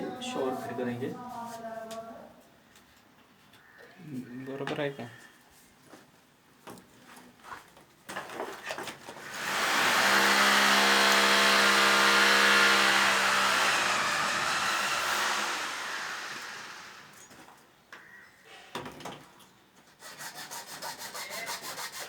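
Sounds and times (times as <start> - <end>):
electric power tool motor humming: 9.2 - 17.2.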